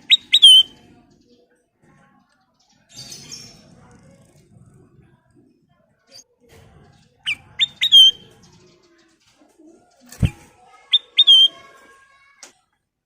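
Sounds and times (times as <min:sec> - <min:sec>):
bird calling sharp clear notes: 0:00.0 - 0:00.8, 0:07.3 - 0:08.3, 0:10.2 - 0:11.6.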